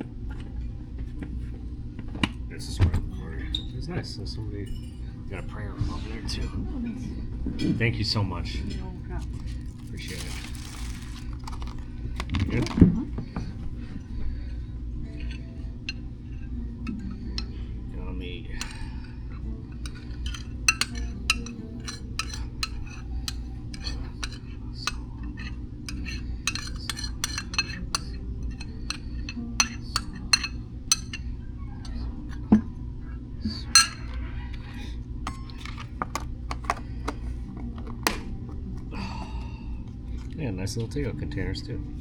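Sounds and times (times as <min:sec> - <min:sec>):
low room hum: 0:00.0 - 0:42.0
cutlery and dishes clinking: 0:09.4 - 0:12.8, 0:19.8 - 0:31.2, 0:33.6 - 0:34.2, 0:35.3 - 0:37.2.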